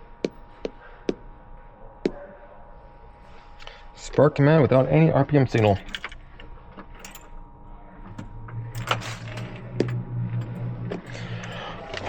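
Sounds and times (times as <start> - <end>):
low steady hum: 0.0 - 12.0
clicks and metallic clinks: 5.5 - 7.4.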